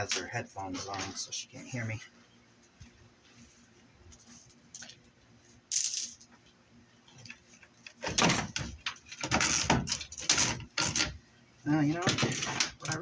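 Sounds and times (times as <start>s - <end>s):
metal parts clattering: 5.7s - 6.2s.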